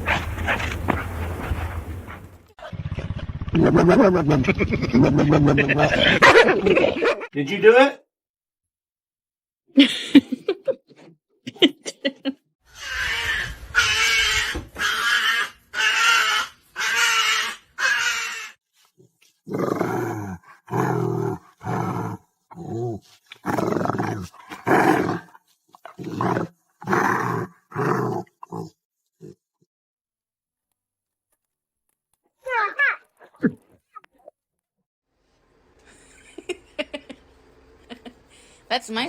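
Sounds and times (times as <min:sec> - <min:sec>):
dog growling: 0:00.0 - 0:06.5, 0:19.5 - 0:29.4.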